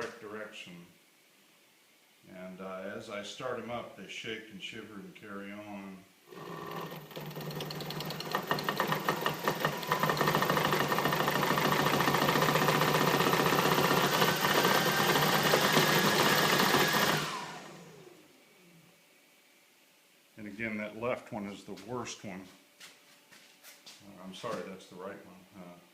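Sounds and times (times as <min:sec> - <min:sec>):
model plane motors rattling buzz: 0:06.3 - 0:18.1.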